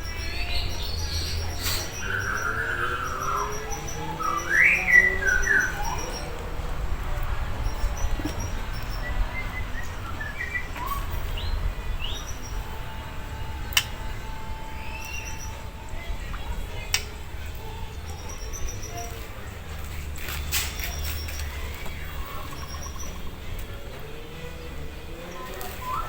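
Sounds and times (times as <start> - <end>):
bird whistling: 0.0 - 6.6, 7.6 - 19.4, 22.2 - 23.4, 25.2 - 26.0.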